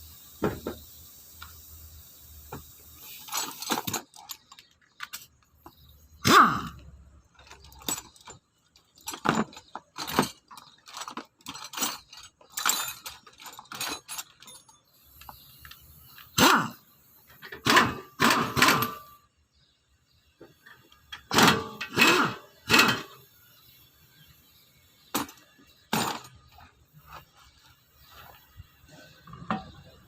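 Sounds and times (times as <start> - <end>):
metal tools clanking: 2.9 - 16.4, 17.3 - 19.2, 20.6 - 23.3, 25.0 - 30.0.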